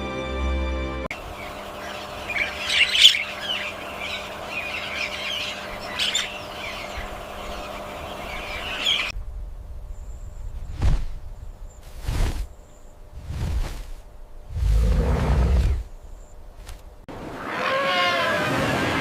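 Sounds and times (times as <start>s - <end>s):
bird calls: 1.1s - 9.2s
outdoor background hiss: 1.1s - 17.6s.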